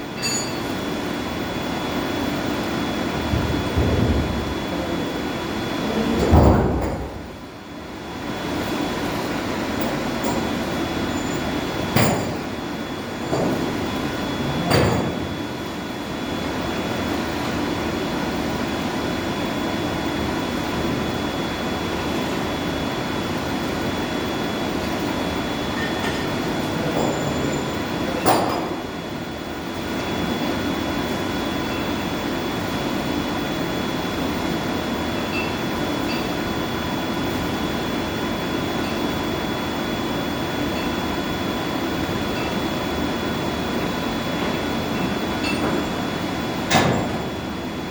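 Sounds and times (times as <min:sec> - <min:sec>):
boiler-house machinery drone: 0:00.0 - 0:47.9.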